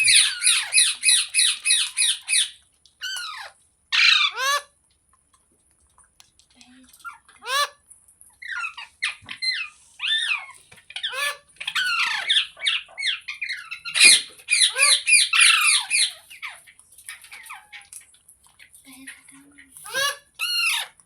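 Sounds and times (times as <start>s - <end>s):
parrot squawking: 0.0s - 4.8s, 7.4s - 7.8s, 8.4s - 18.0s, 19.8s - 21.0s.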